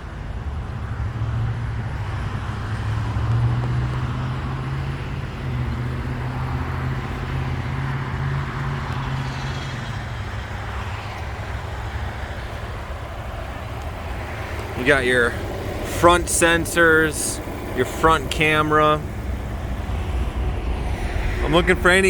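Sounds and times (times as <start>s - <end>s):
road traffic noise: 0.0s - 22.0s
vehicle engine hum: 0.0s - 22.0s.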